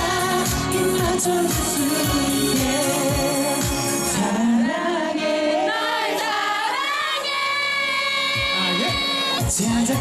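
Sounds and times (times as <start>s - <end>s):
pop backing track: 0.0s - 5.4s, 7.3s - 10.0s
man singing vocal run: 8.4s - 10.0s.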